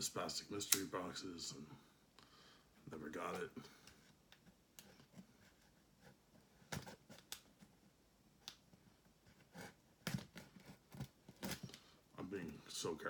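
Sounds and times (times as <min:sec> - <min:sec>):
box packing rustling and clicks: 0:09.4 - 0:11.8.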